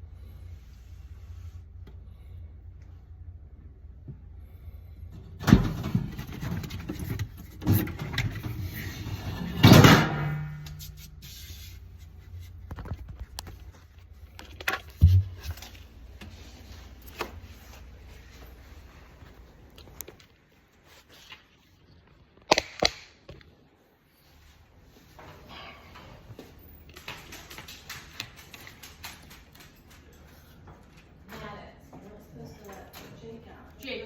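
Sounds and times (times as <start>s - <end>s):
steady low hum: 0.0s - 20.1s
knocks and scraping of parts: 5.1s - 17.6s.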